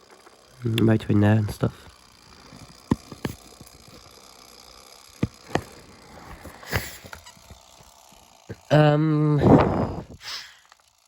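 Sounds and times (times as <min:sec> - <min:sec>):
plastic fan clicks and knocks: 0:01.4 - 0:04.2, 0:05.1 - 0:08.0.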